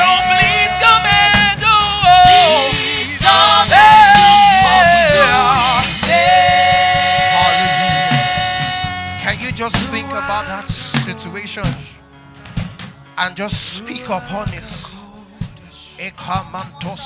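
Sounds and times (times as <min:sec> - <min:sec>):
person singing long sliding notes: 0:00.0 - 0:11.6
instrumental accompaniment: 0:00.0 - 0:17.0.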